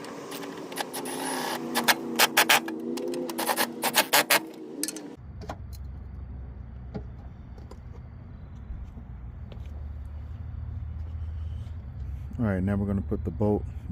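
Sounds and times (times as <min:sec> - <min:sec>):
power tool motor whirring: 0:00.0 - 0:04.6.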